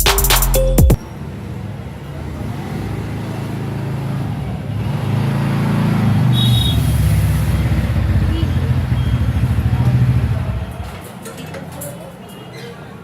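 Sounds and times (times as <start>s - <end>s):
electronic background music: 0.0s - 1.0s
road noise: 1.0s - 13.0s
vehicle engine running: 2.8s - 10.9s.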